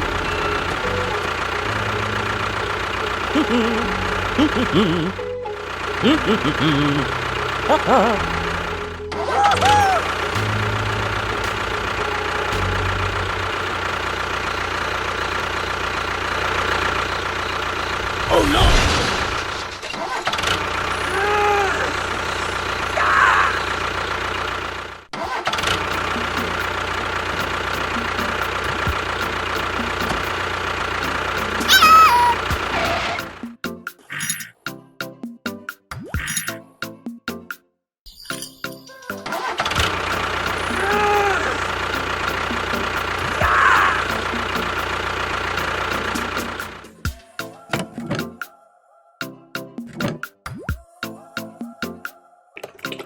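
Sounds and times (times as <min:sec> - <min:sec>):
small motor ticking: 0:00.0 - 0:09.1, 0:10.0 - 0:18.3, 0:23.6 - 0:33.4, 0:39.7 - 0:47.2
tractor engine running: 0:00.0 - 0:33.6, 0:39.2 - 0:47.2.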